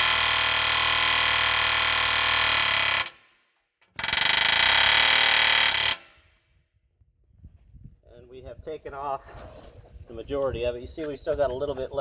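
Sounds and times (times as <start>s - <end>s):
pneumatic air hammer rattling: 0.0s - 6.4s.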